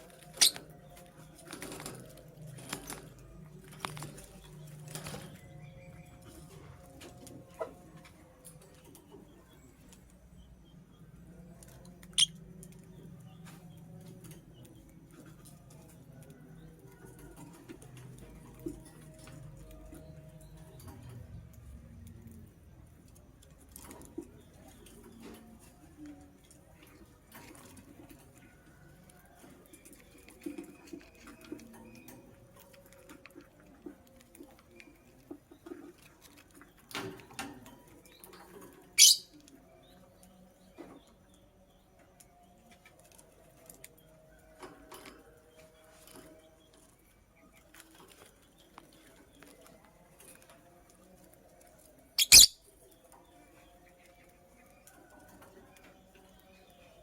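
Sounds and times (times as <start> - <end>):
bird chirp: 0.0 - 1.7, 8.4 - 15.9, 36.6 - 42.6, 52.1 - 55.0
bird rustling and scratching: 23.5 - 38.9.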